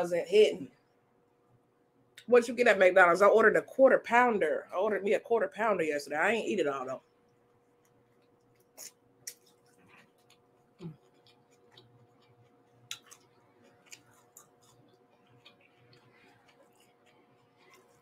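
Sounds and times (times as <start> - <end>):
faint steady hum: 0.0 - 18.0
person chewing food: 7.1 - 18.0.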